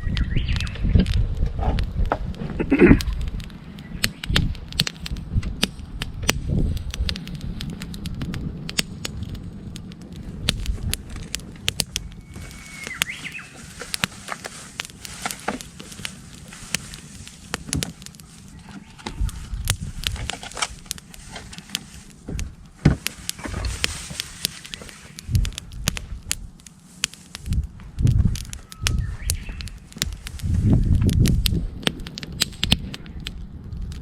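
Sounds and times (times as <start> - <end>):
campfire crackling: 0.0 - 34.0
bird whistling: 12.0 - 13.6, 28.6 - 29.7.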